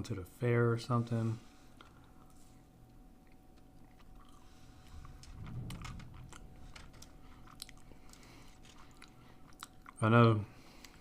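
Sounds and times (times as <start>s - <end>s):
person chewing food: 1.8s - 4.9s, 7.3s - 10.0s.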